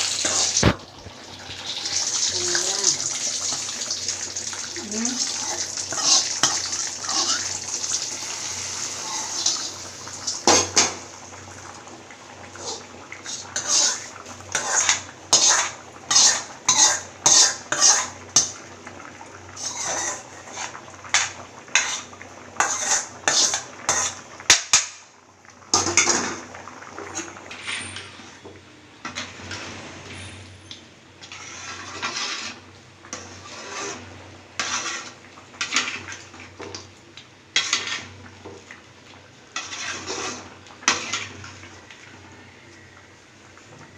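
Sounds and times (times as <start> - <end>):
metal utensil scraping a pot: 0.1 - 0.7, 5.2 - 9.7, 12.6 - 18.6, 19.5 - 24.2, 25.7 - 30.6, 31.2 - 36.2, 37.6 - 38.2, 39.5 - 41.6.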